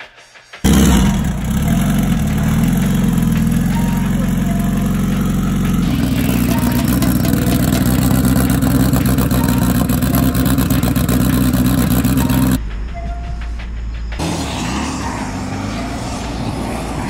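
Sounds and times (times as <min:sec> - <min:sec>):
car engine idling: 0:00.6 - 0:12.6.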